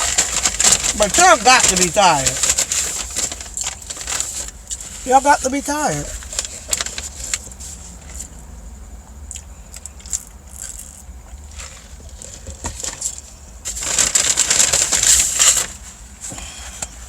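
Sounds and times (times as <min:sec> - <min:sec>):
chewing crunchy food: 0:09.3 - 0:12.4.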